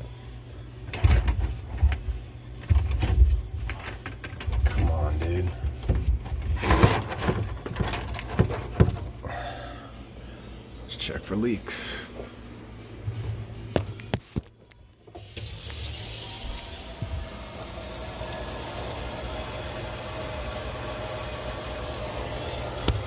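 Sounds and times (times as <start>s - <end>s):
water rushing into dishwasher: 15.2s - 23.0s.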